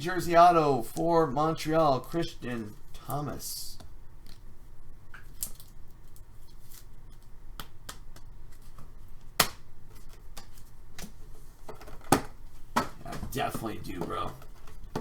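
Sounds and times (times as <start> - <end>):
cards shuffling and rustling: 1.7 - 4.5, 5.2 - 15.0.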